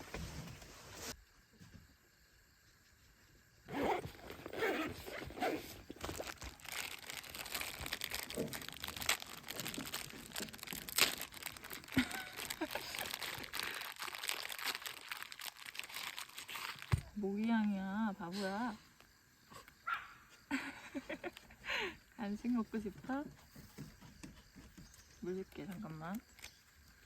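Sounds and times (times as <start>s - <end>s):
dry crinkling and crunching: 4.0s - 17.7s, 24.8s - 27.0s.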